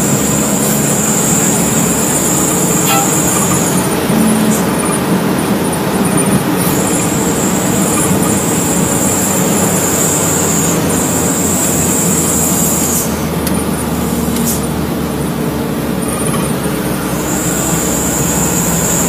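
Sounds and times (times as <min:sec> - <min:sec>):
thin high whine: 0:00.0 - 0:13.1
truck engine and tyre rumble: 0:00.0 - 0:19.0.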